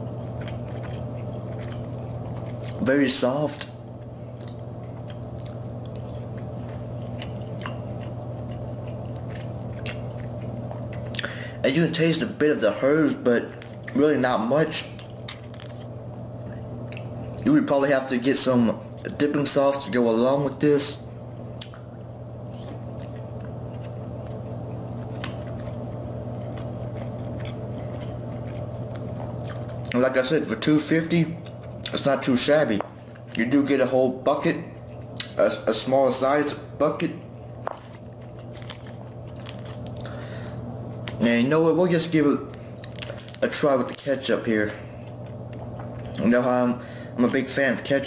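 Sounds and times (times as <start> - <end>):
person chewing: 0.0 - 2.9, 3.5 - 11.5, 14.9 - 17.5, 21.6 - 30.2, 31.3 - 32.1, 34.8 - 35.4, 37.4 - 41.2, 42.5 - 46.3
low hum: 0.0 - 48.0.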